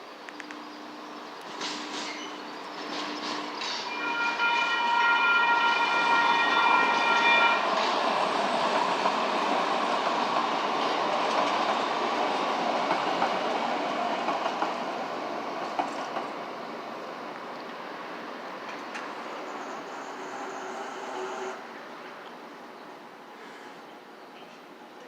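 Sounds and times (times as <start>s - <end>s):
train wheels rumbling on rail: 0.2s - 22.8s
train horn: 3.8s - 7.9s, 20.2s - 21.6s.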